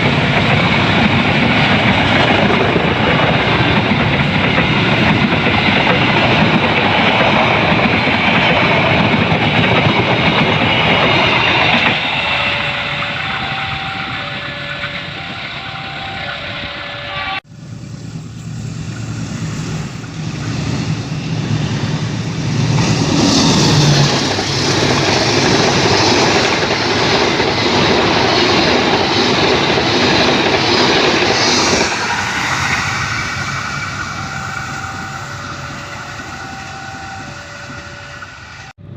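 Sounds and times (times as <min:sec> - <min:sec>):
train passing on rails: 0:00.0 - 0:38.9
level crossing warning bell: 0:08.8 - 0:17.4, 0:25.0 - 0:38.7.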